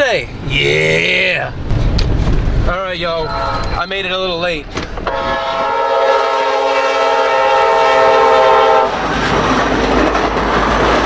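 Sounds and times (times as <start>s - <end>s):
train wheels rumbling on rail: 0.0s - 11.0s
locomotive air horn: 3.2s - 3.7s, 5.0s - 9.0s.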